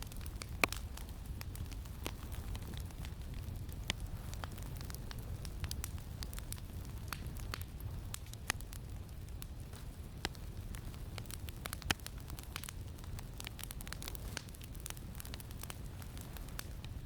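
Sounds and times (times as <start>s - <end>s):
campfire crackling and popping: 0.0s - 17.0s
low rumble of wind: 0.0s - 17.0s.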